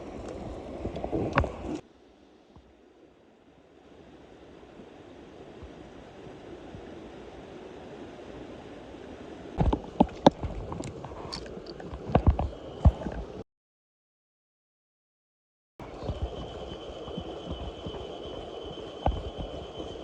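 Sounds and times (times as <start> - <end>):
mountain stream rushing: 2.9 - 13.4.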